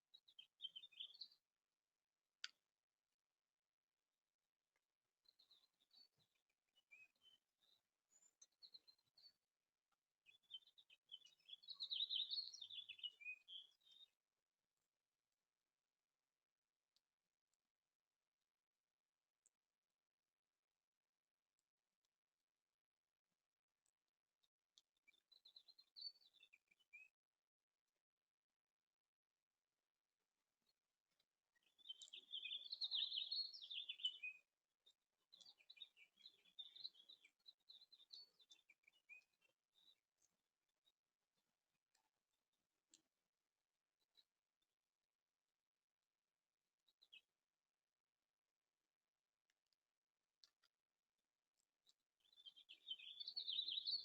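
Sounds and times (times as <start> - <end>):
songbird singing: 0.0 - 1.5, 5.2 - 9.5, 10.1 - 14.2, 24.8 - 27.2, 31.5 - 41.0, 52.2 - 54.0.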